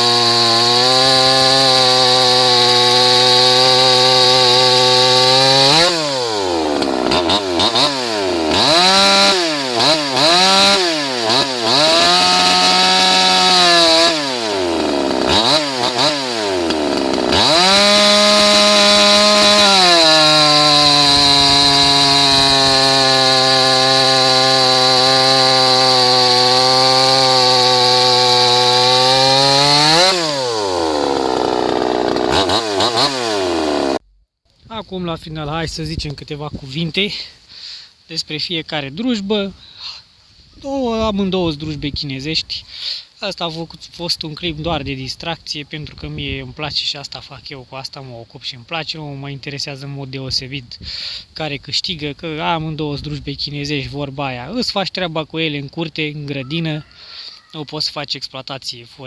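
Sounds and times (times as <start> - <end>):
chainsaw cutting wood: 0.0 - 34.0
chainsaw revving: 0.0 - 34.0.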